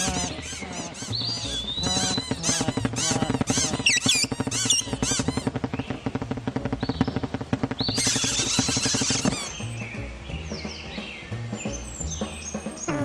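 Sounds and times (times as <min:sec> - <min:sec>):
harsh squawking: 0:00.0 - 0:05.6, 0:07.8 - 0:09.6
cartoon birds chirping: 0:00.0 - 0:11.0, 0:11.6 - 0:13.0.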